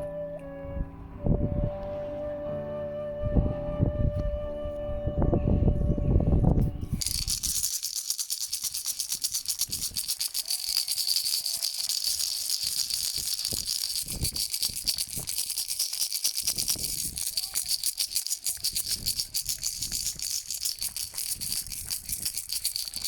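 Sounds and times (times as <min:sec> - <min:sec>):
horn-like tone with low rumble: 0:00.0 - 0:07.0
shaker rattling rapidly: 0:06.9 - 0:23.0.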